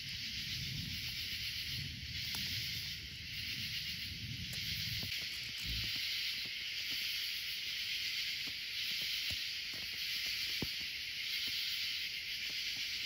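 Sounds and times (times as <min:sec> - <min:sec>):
night insects chorus: 0:00.0 - 0:13.0
faint ticks: 0:02.2 - 0:02.8, 0:04.4 - 0:13.0.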